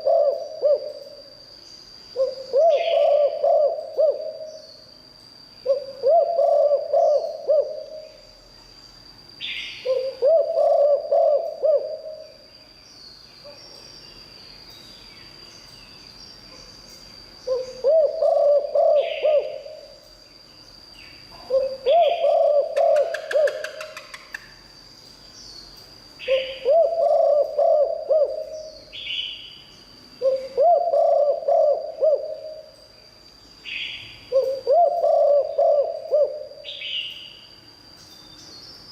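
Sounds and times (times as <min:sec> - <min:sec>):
dove cooing: 0:00.0 - 0:01.2, 0:02.2 - 0:04.6, 0:05.6 - 0:08.2, 0:09.8 - 0:12.4, 0:17.5 - 0:19.9, 0:21.4 - 0:24.2, 0:26.2 - 0:28.8, 0:30.2 - 0:32.8, 0:34.3 - 0:36.8.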